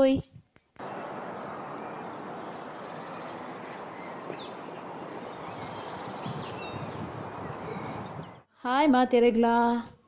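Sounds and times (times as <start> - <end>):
steady outdoor hiss: 0.0 - 8.5
bird chirps: 0.8 - 8.5.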